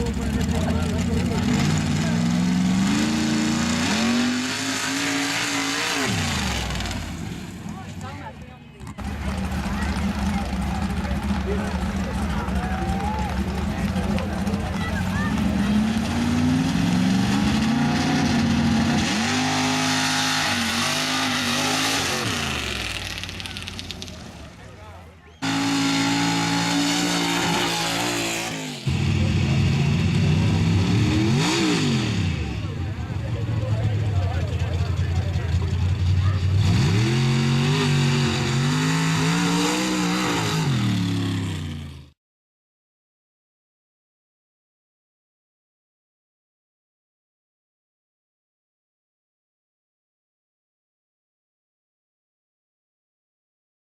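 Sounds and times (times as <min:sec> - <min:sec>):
truck engine revving hard: 0:00.0 - 0:07.9, 0:08.8 - 0:24.5, 0:25.4 - 0:42.2.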